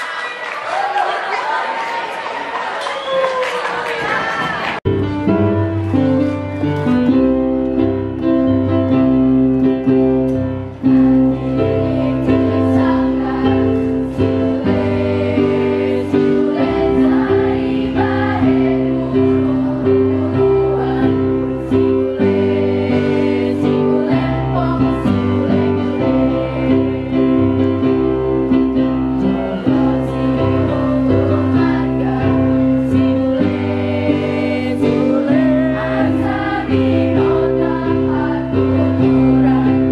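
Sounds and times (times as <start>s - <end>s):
voices singing: 11.0s - 39.9s.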